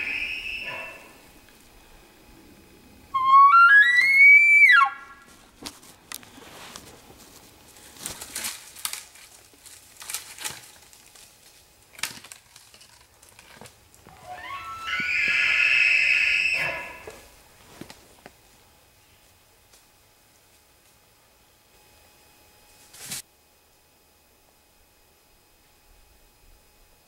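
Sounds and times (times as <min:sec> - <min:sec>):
elk bugling: 0:00.0 - 0:05.4, 0:14.1 - 0:17.3
faint clicks and rustles: 0:05.2 - 0:14.1.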